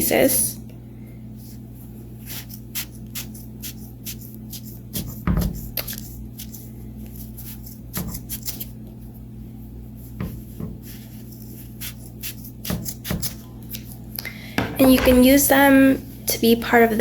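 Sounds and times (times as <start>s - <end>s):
steady low hum: 0.0s - 17.0s
loud thump: 14.6s - 15.4s.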